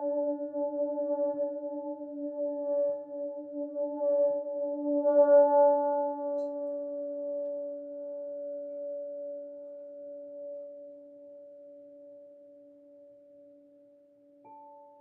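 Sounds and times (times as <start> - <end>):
singing bowls ringing: 14.5 - 15.0.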